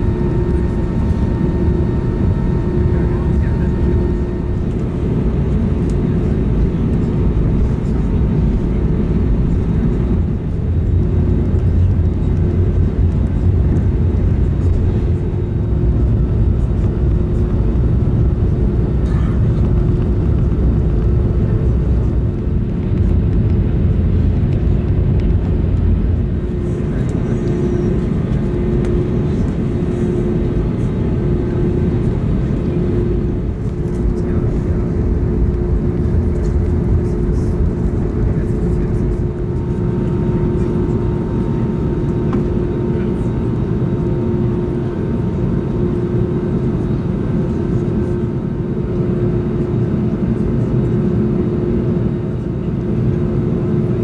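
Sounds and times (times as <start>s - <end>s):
faint steady hum: 0.0s - 10.2s, 25.8s - 45.0s
aircraft cabin rumble: 0.0s - 54.0s.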